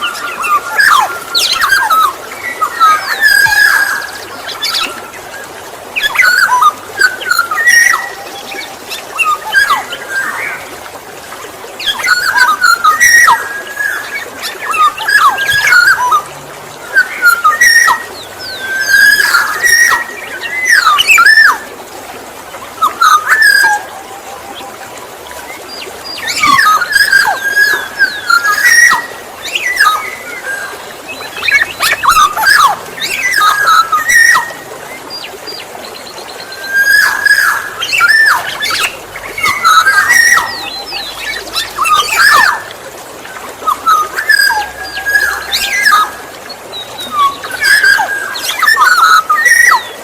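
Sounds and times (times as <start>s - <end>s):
bird singing whistled phrases: 11.8s - 16.2s, 16.9s - 21.6s, 26.2s - 34.6s, 36.4s - 42.7s, 43.6s - 46.3s, 47.0s - 50.0s.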